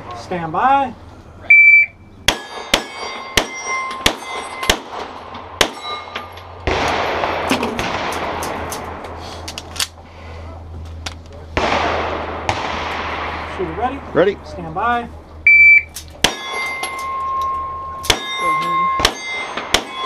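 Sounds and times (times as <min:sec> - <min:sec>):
shot timer beep: 0:01.5 - 0:02.0, 0:15.5 - 0:15.9
steel target plate ringing: 0:02.2 - 0:06.7, 0:15.6 - 0:20.0
pistol shots: 0:02.3 - 0:06.0, 0:06.6 - 0:09.0, 0:11.6 - 0:13.5, 0:16.2 - 0:16.9, 0:18.0 - 0:18.4, 0:19.0 - 0:20.0.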